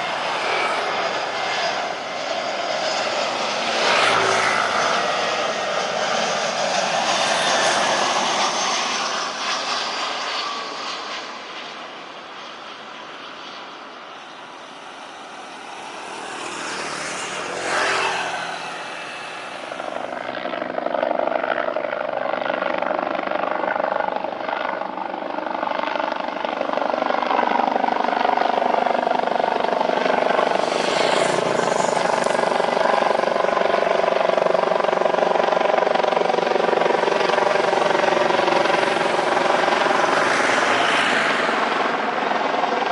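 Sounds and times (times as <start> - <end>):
jet engines roaring: 0.0 - 21.9, 26.3 - 42.9.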